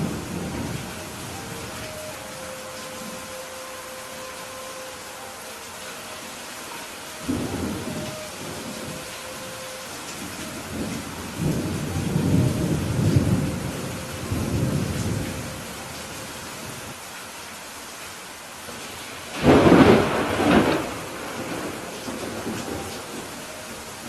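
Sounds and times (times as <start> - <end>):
rain hiss: 0.0 - 24.0
rolling thunder: 10.1 - 15.7, 19.3 - 23.4
sharp thunderclap: 19.4 - 22.8.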